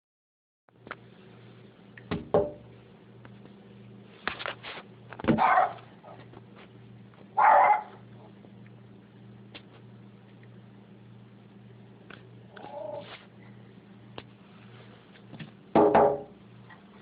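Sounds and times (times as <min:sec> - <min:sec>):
steady low hum: 0:00.7 - 0:17.0
dog barking: 0:05.3 - 0:06.2, 0:07.4 - 0:08.0.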